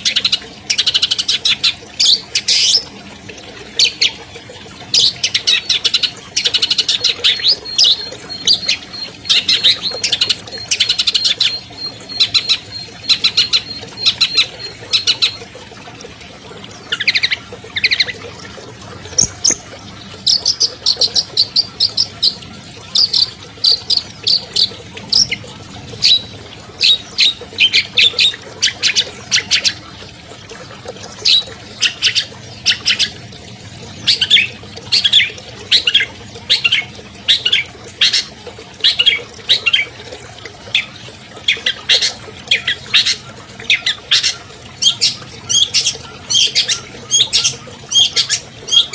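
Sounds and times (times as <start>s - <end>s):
bird chattering song: 5.0s - 15.4s, 16.9s - 18.2s, 19.1s - 29.9s, 31.2s - 33.2s, 34.0s - 39.9s, 40.7s - 48.9s.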